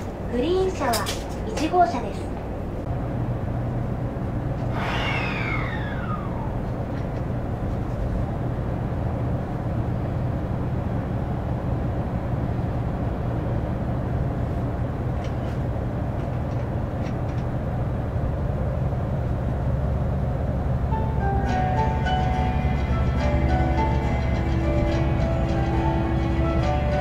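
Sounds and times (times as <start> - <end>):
railcar engine drone: 0.0 - 27.0.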